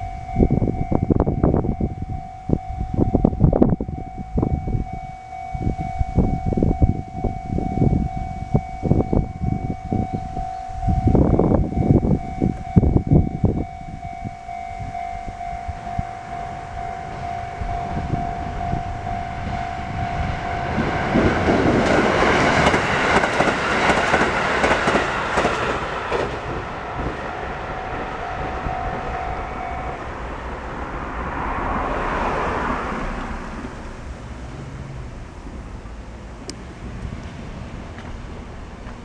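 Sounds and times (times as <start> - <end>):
crossing alarm pulsing tone: 0.0 - 34.6
train wheels clattering over rail joints: 20.7 - 28.5.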